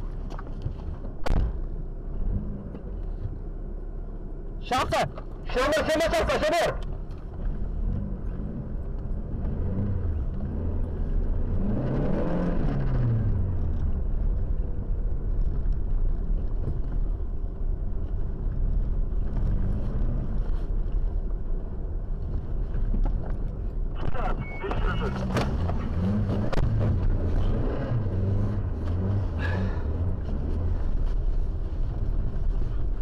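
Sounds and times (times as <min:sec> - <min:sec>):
road noise: 0:00.0 - 0:33.0
car engine revving: 0:07.4 - 0:15.0, 0:24.0 - 0:33.0.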